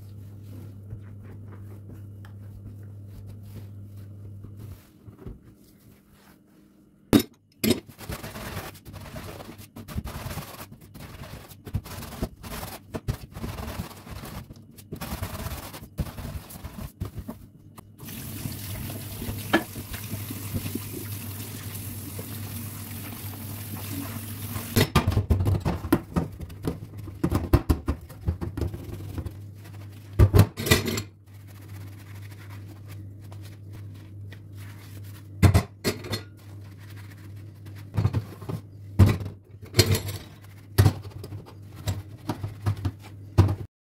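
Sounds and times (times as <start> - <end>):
clatter of kitchen items: 7.2 - 10.6, 19.2 - 20.9, 24.7 - 29.4, 30.1 - 31.2, 35.4 - 37.1, 37.8 - 43.7
kitchen tap running: 18.0 - 24.8.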